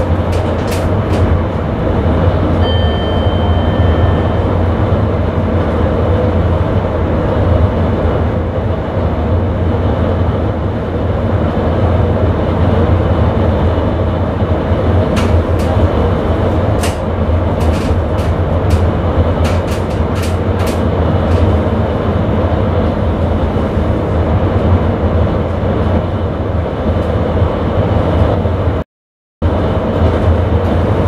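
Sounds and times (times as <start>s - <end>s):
train low hum: 0.0s - 28.8s, 29.4s - 31.0s
wheels rumbling on rails: 0.0s - 28.8s, 29.4s - 31.0s
high beep: 2.6s - 4.8s.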